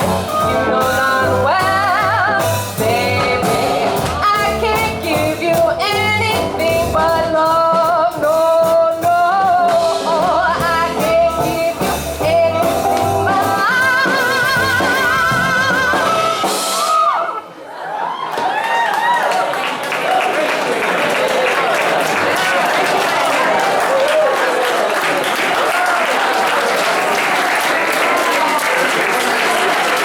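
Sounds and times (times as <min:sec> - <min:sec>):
swing jazz band: 0:00.0 - 0:17.0
drums: 0:00.0 - 0:17.6
female singer with vibrato: 0:00.1 - 0:16.6.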